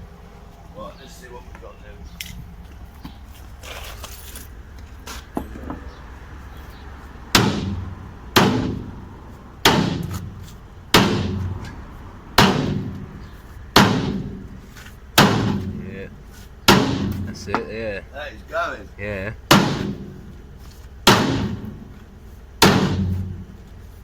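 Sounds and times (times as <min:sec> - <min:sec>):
sledgehammer striking steel: 0:07.3 - 0:11.8, 0:12.4 - 0:15.9, 0:16.7 - 0:17.7, 0:19.5 - 0:20.3, 0:21.0 - 0:22.0, 0:22.6 - 0:23.6.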